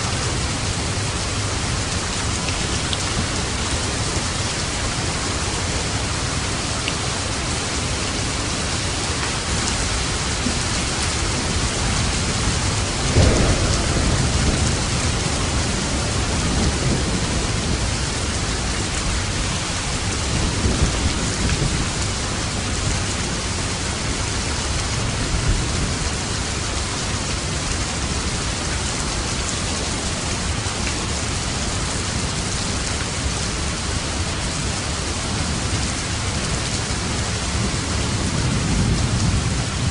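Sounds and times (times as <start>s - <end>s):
heavy rain: 0.0s - 39.9s
thunder rumbling: 9.4s - 23.1s.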